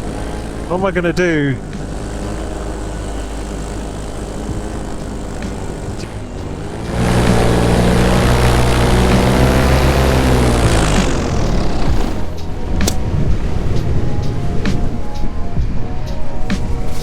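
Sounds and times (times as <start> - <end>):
paramotor engine and propeller: 0.0 - 17.0.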